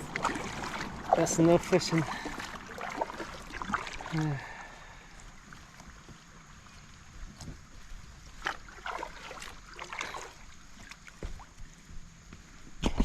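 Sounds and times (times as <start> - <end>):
sharp splashes and knocks: 0.0 - 4.4, 7.2 - 11.6
river current washing: 0.0 - 11.6
paddle strokes splashing: 0.0 - 12.6.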